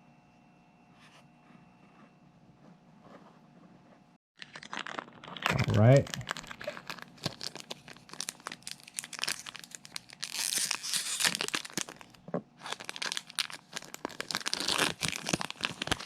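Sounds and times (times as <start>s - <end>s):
foil wrapper crinkling: 4.4s - 16.0s
foil wrapper tearing: 4.4s - 16.0s.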